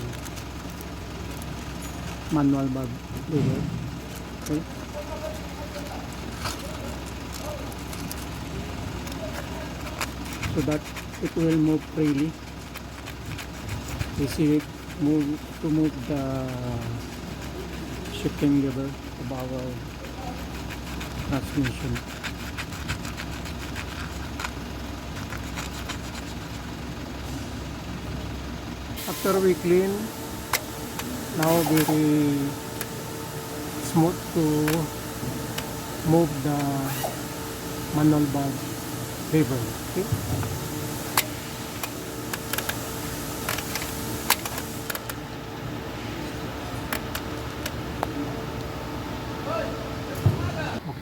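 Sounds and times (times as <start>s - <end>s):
short scratchy strokes: 0.0s - 26.8s, 29.0s - 45.0s
steady low hum: 0.0s - 51.0s
hand tools clicking and tapping: 5.2s - 26.6s, 41.0s - 45.2s.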